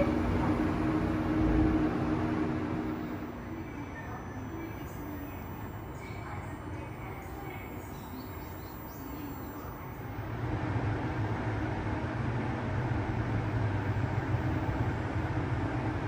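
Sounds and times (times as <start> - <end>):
train rumbling: 0.0 - 8.1.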